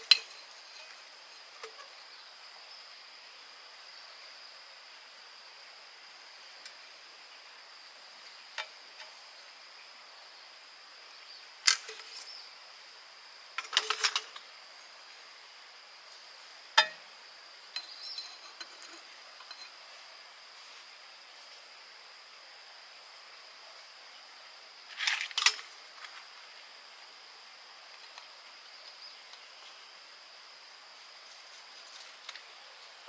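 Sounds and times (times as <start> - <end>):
tools clinking and knocking: 0.0 - 1.0, 13.6 - 14.4, 16.8 - 17.0, 17.7 - 19.8
high insect trill: 0.0 - 33.0.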